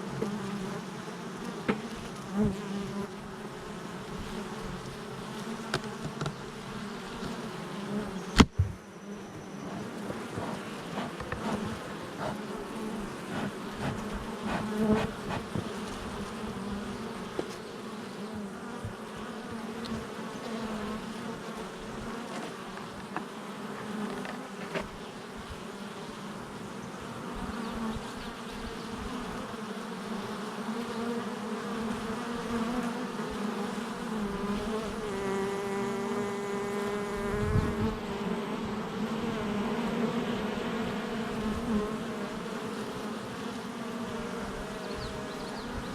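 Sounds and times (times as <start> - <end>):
bees buzzing at hive: 0.0 - 45.9
single bee flying past: 0.0 - 45.9.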